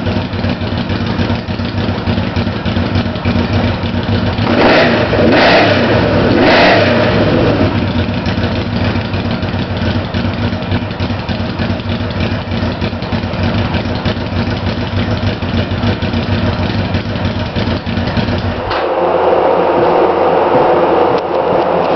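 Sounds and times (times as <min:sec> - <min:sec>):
motorcycle engine idling: 0:00.0 - 0:21.9
mechanical clatter: 0:07.7 - 0:19.1.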